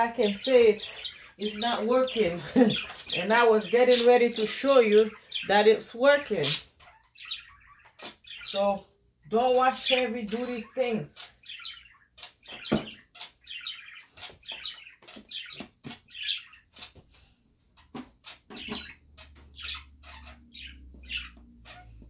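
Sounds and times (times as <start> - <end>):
small bird chirping: 0.2 - 22.0.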